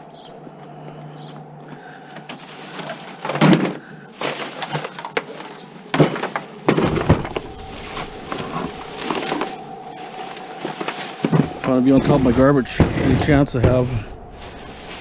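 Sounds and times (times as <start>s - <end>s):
junk clattering and scraping: 2.2s - 15.0s
loud thuds: 6.7s - 9.8s, 11.2s - 15.0s.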